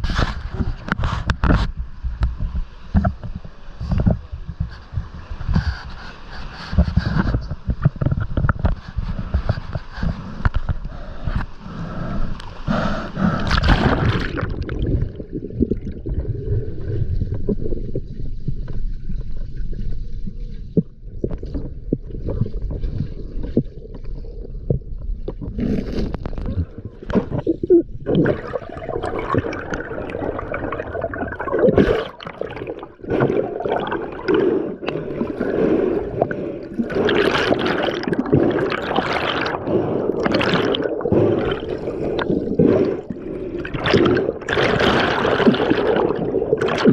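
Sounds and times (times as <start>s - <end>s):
knocks and scrapes: 0.0s - 10.8s
water gurgling and sloshing: 0.0s - 46.9s.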